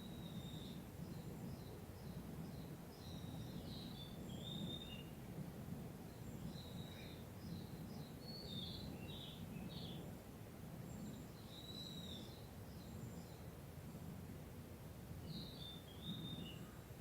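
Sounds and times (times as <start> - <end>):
small birds chirping: 6.1 - 10.1.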